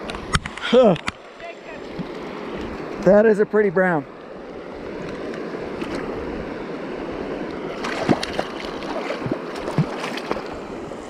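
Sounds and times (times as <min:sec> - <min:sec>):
river water rushing: 0:01.2 - 0:11.0
water splashes: 0:04.9 - 0:06.3, 0:07.4 - 0:11.0.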